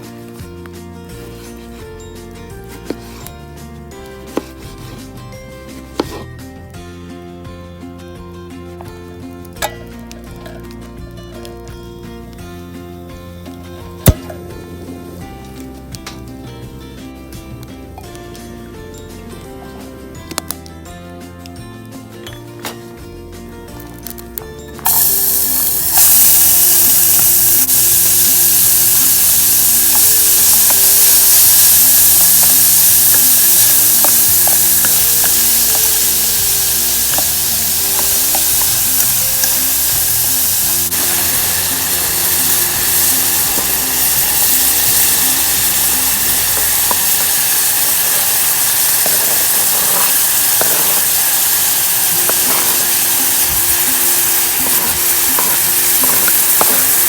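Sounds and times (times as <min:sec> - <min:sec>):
background music: 0:00.0 - 0:57.0
food sizzling in a pan: 0:02.7 - 0:06.4, 0:24.8 - 0:57.0.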